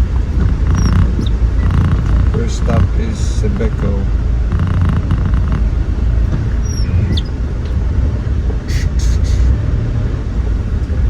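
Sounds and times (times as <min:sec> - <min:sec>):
faint squeaks: 0:00.0 - 0:03.8, 0:04.5 - 0:07.4
vehicle engine and road noise: 0:00.0 - 0:11.0.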